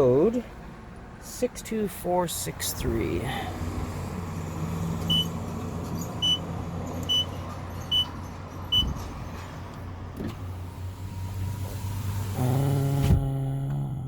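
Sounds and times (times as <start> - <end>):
keypad beeps: 5.1 - 5.3, 6.2 - 6.4, 7.1 - 7.3, 7.9 - 8.1.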